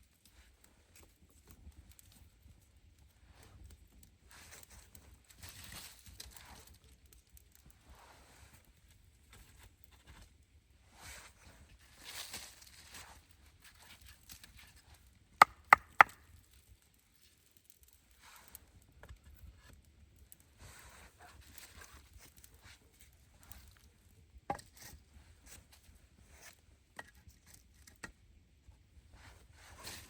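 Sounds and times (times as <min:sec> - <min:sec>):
sharp knocks: 0:15.4 - 0:16.2.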